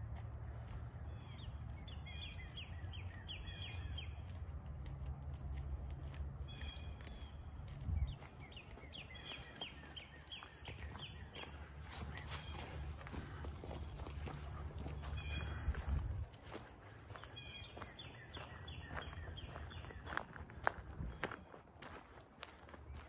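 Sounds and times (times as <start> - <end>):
woodland birds calling: 1.0 - 4.3, 6.4 - 7.4, 8.1 - 21.5.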